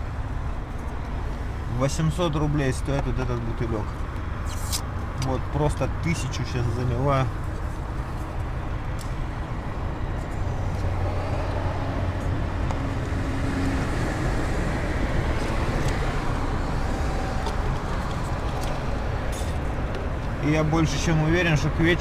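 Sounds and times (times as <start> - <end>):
road traffic noise: 0.0 - 22.0
vehicle passing: 7.6 - 21.0.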